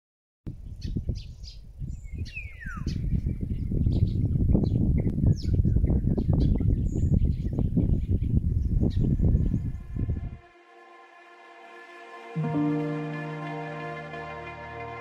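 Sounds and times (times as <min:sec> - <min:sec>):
low gusty rumble: 0:00.5 - 0:10.5.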